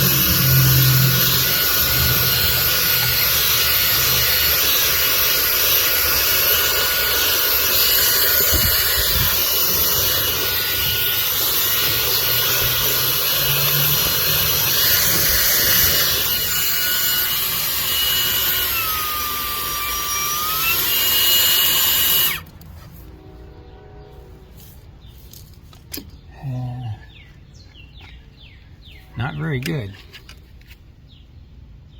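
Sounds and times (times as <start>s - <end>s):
handheld vacuum whining: 0.0s - 22.6s.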